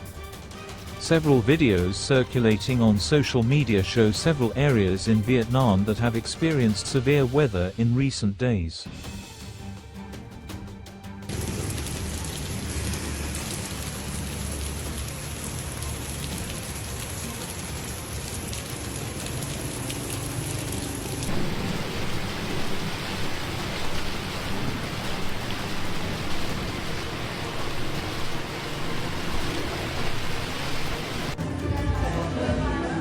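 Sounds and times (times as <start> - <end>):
heavy rain hissing: 11.3 - 31.4.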